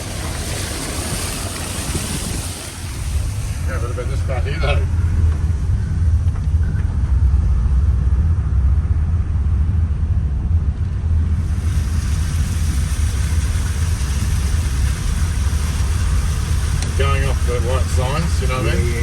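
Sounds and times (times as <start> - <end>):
steady hiss: 0.0 - 6.1, 11.4 - 19.0
car engine and tyres rumbling: 0.0 - 19.0.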